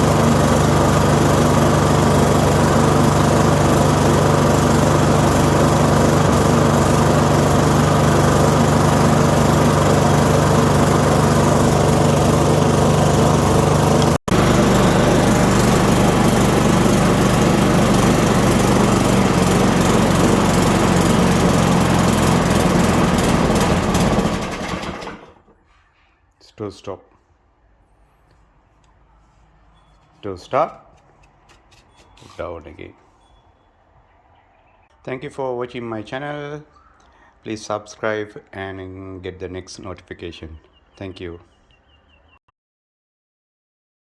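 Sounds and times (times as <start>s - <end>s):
lawn mower engine running: 0.0s - 25.6s.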